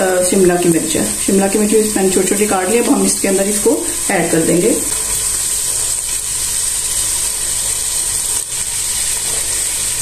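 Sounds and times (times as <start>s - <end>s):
chicken and vegetables sizzling in oil: 0.0s - 10.0s.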